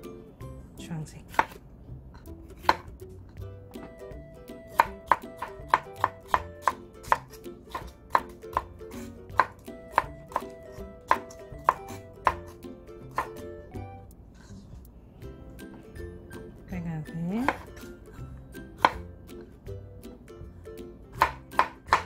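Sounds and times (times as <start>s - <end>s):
knife chopping on wooden board: 1.3s - 1.6s, 2.5s - 3.0s, 4.7s - 13.5s, 17.4s - 17.9s, 18.8s - 19.1s, 21.2s - 22.0s.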